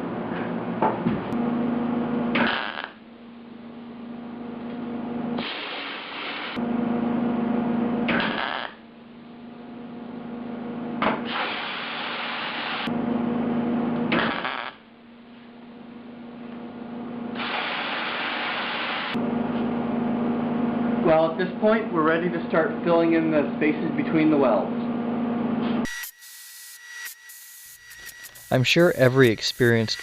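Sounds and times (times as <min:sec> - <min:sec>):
welding arc crackle: 0:02.4 - 0:03.0, 0:05.4 - 0:06.6, 0:08.1 - 0:08.8, 0:11.3 - 0:12.9, 0:14.2 - 0:14.8, 0:17.4 - 0:19.2
steady electrical hum: 0:27.8 - 0:30.0.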